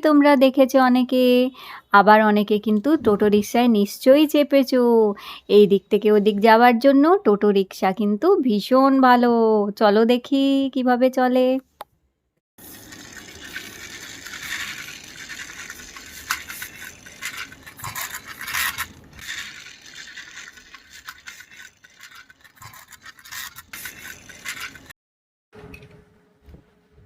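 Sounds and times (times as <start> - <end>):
toy wheels scraping and rattling: 12.6 - 25.0.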